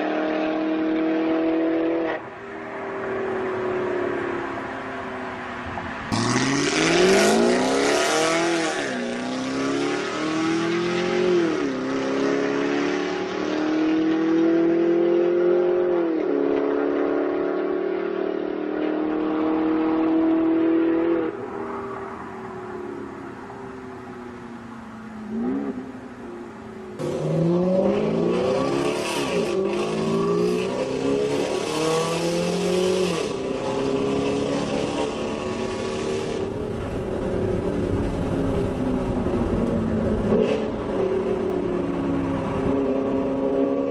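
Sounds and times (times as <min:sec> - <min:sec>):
car engine accelerating through gears: 0:06.1 - 0:21.8.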